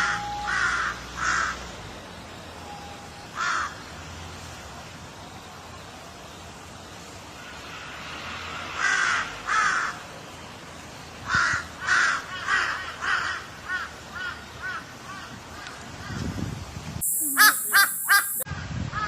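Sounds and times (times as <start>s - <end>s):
steady background hiss: 0.0s - 18.4s
crow cawing: 17.0s - 18.4s.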